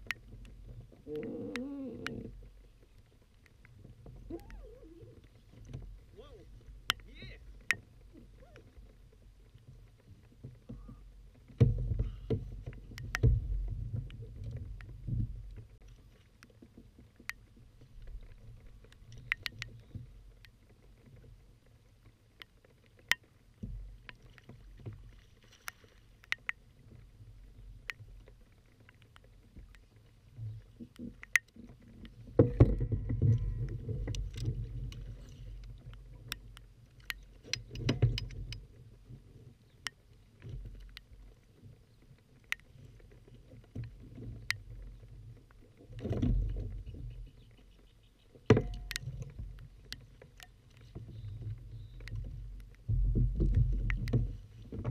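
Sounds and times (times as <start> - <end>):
sharp ticks: 18.2 - 20.7, 25.6 - 26.7, 30.9 - 32.2, 48.5 - 49.2, 53.8 - 54.2.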